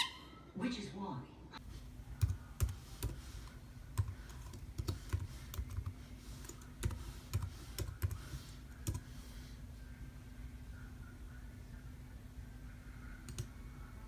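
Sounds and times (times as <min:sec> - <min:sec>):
faint steady hum: 0:00.2 - 0:14.0
computer keyboard typing: 0:02.2 - 0:09.1, 0:13.3 - 0:13.5.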